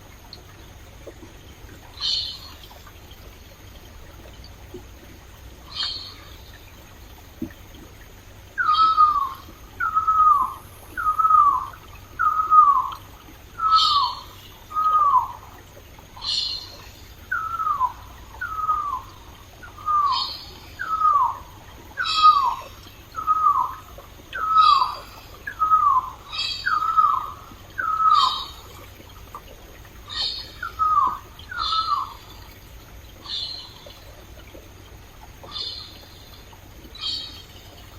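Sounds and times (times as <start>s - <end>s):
faint running water: 0.0s - 37.9s.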